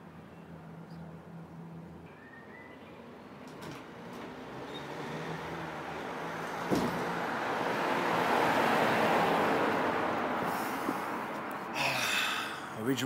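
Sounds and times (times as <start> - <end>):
car driving past: 2.2 - 11.3.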